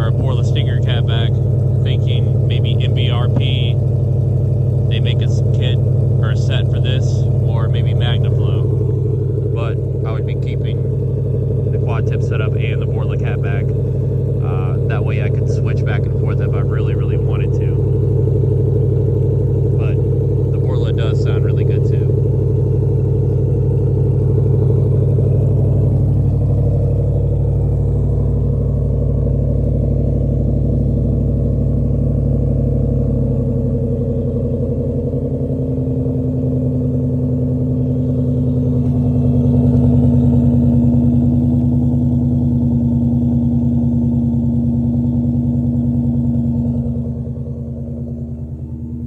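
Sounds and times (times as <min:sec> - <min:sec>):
car engine running: 0:00.0 - 0:49.0.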